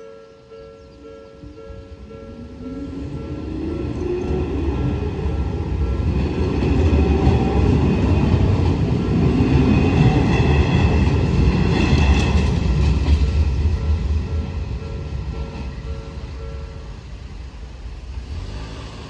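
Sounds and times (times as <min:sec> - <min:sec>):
level crossing warning bell: 0:00.0 - 0:08.7, 0:12.4 - 0:17.4
train wheels rumbling on rails: 0:01.4 - 0:19.0.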